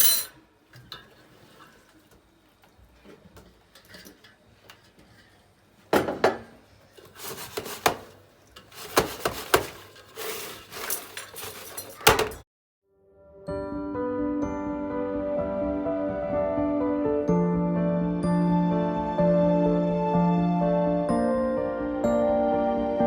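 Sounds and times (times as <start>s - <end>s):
dishes and utensils clinking: 0.0s - 1.2s, 6.0s - 12.4s.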